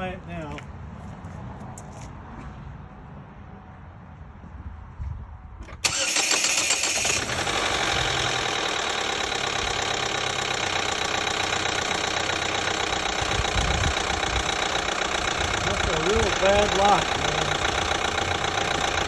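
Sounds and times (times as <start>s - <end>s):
car engine starting and idling: 5.6s - 19.0s
engine knocking: 7.1s - 19.0s.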